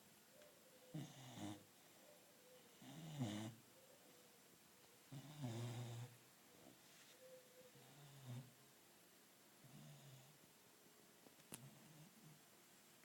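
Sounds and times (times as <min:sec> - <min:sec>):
puppy snoring: 0:00.9 - 0:01.7, 0:02.7 - 0:03.6, 0:05.1 - 0:06.2, 0:07.8 - 0:08.5.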